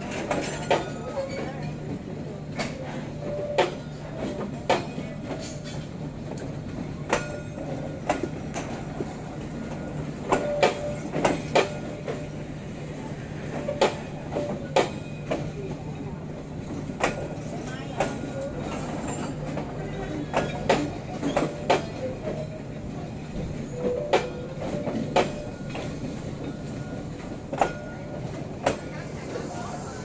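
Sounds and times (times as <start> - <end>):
train wheels clicking over rail joints: 3.5 - 12.4, 16.6 - 22.4, 23.2 - 29.1.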